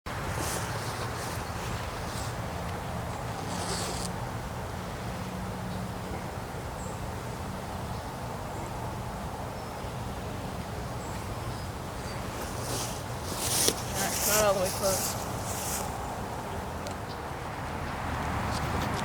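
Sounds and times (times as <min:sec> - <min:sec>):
brief rustle: 0:12.4 - 0:16.0.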